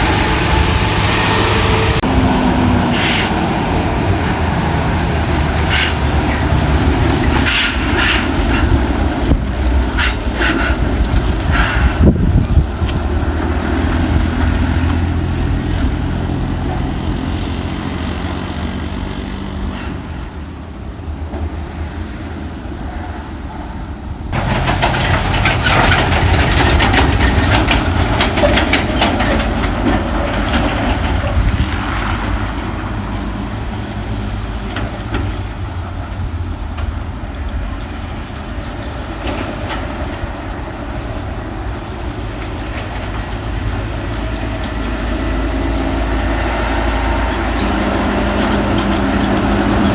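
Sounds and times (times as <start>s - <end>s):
truck diesel engine droning: 0.0s - 21.4s, 23.5s - 49.9s
rapid clattering and rattling: 24.4s - 31.8s.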